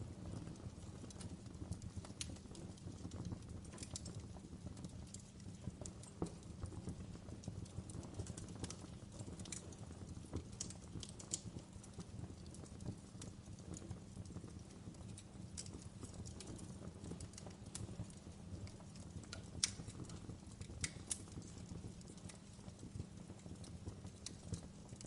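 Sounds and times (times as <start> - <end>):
fireplace fire crackling: 0.0 - 25.0.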